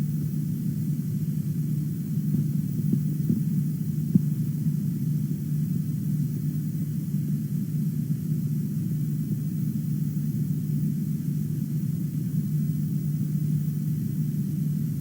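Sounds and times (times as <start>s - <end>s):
steady low rumble: 14.1s - 15.0s.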